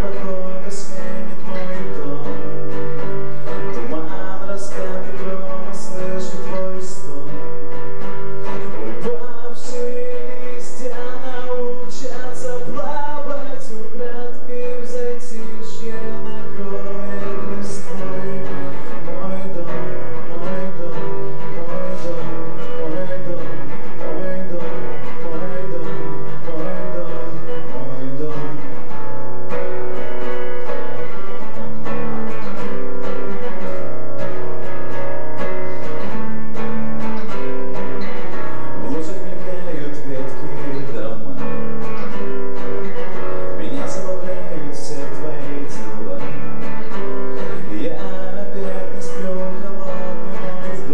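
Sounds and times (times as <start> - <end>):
guitar playing chords: 0.0 - 50.9.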